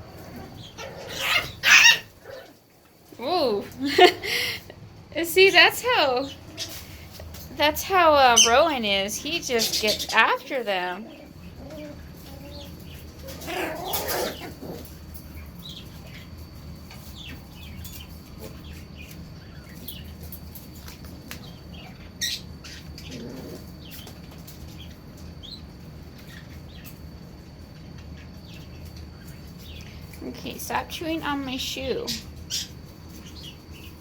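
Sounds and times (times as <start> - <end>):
puppies squeaking and whimpering: 0.5 - 2.5, 7.9 - 14.9.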